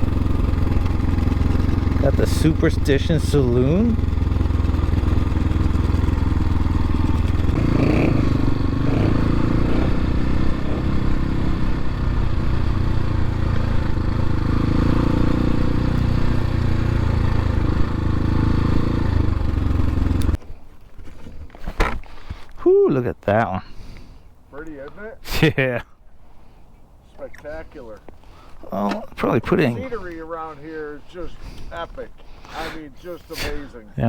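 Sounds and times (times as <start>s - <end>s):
dirt bike engine running: 0.0s - 20.4s.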